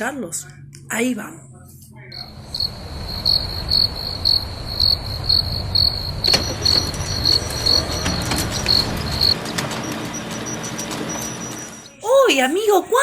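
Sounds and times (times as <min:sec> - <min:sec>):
low rumble: 0:00.0 - 0:09.4
crickets chirping: 0:02.1 - 0:09.4.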